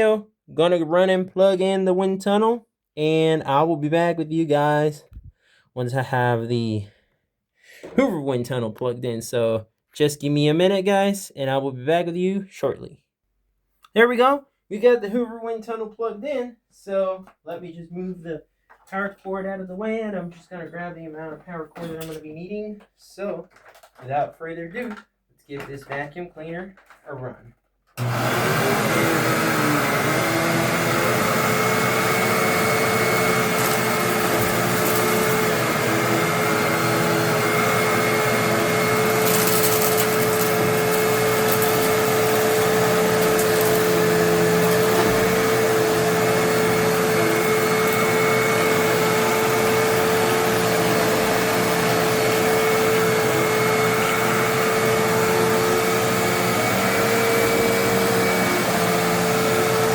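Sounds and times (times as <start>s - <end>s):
vacuum cleaner motor whine: 28.0s - 59.9s.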